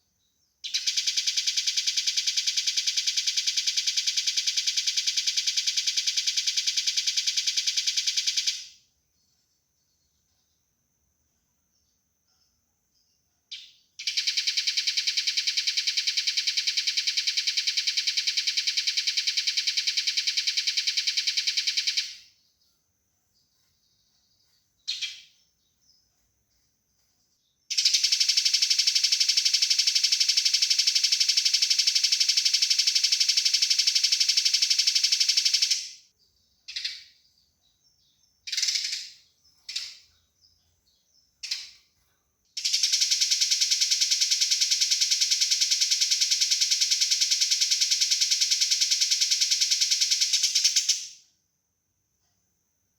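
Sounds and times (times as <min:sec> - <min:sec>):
sparrow single chirps: 0:23.5 - 0:26.2.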